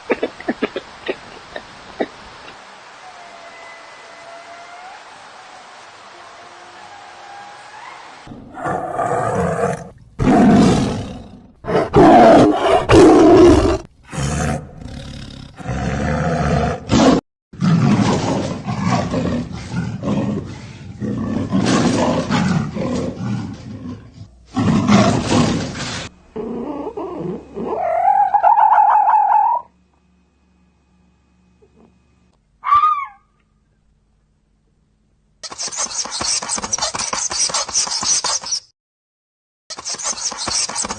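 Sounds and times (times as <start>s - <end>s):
animal roaring: 8.3s - 29.6s
rising pitched animal call: 26.3s - 29.8s, 32.6s - 33.4s.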